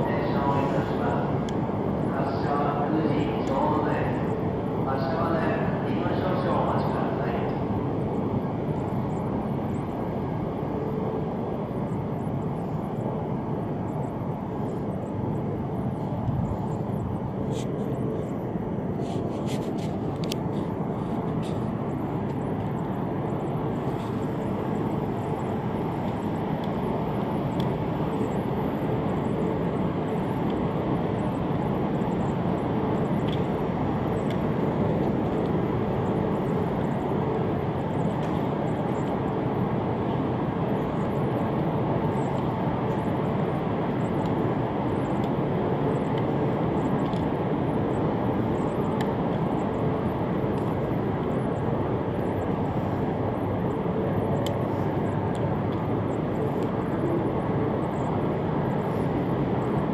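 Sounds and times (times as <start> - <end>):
train rumbling hum: 0.0 - 59.9.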